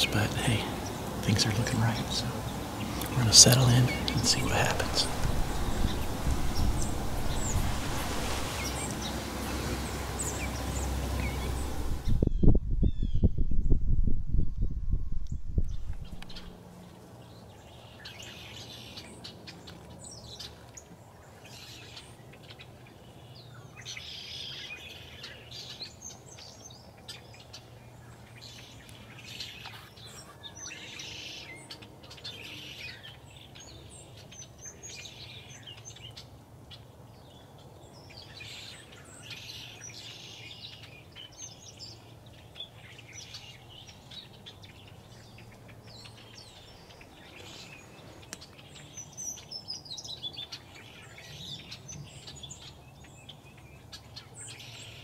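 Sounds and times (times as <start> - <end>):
faint low hum: 0.0 - 16.6
small birds chirping: 0.0 - 16.6, 17.2 - 55.0.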